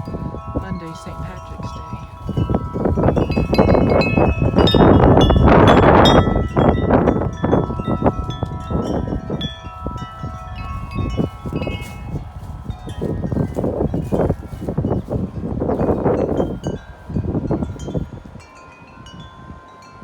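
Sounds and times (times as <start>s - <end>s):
wind buffeting microphone: 0.0s - 20.0s
wind chimes clanging: 0.0s - 20.0s.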